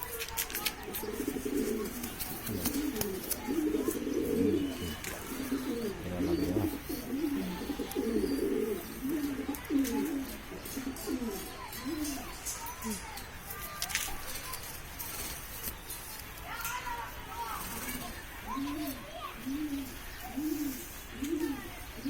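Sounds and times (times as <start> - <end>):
pigeons cooing: 0.0 - 13.1, 17.6 - 22.0.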